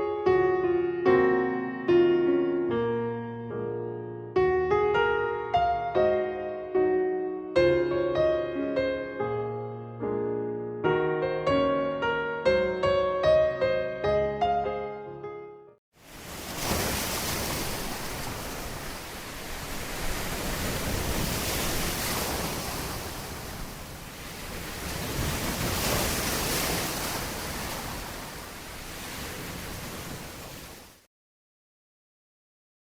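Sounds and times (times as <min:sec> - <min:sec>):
ocean waves breaking on shore: 0:16.0 - 0:31.1.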